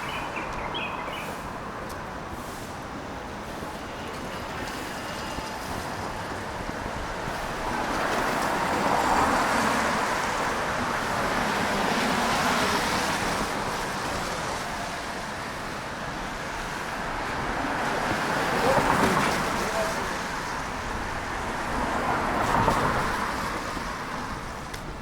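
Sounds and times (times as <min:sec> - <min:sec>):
tyres hissing on wet road: 0:01.0 - 0:25.0.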